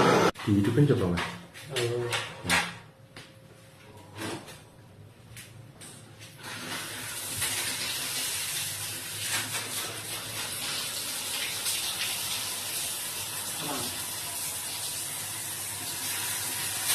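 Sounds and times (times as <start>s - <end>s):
water running from a tap: 6.5s - 16.9s.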